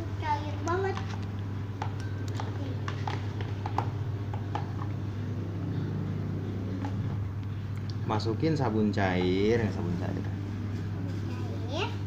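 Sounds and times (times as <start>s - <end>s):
steady low hum: 0.0s - 12.0s
stirrer tapping container sides: 0.6s - 5.0s.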